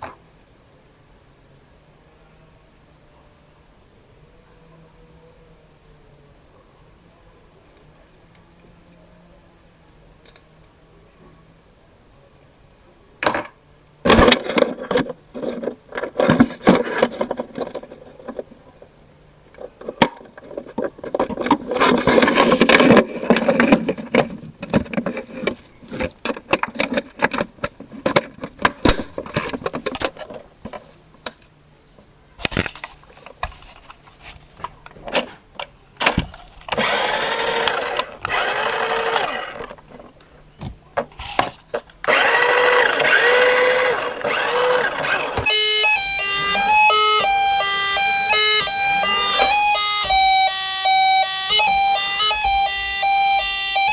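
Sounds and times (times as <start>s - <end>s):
plastic toys clicking and rattling: 19.6s - 30.8s
toy motor whirring: 36.7s - 39.7s, 42.0s - 53.9s
electronic toy siren wailing: 36.8s - 39.7s, 42.1s - 53.9s.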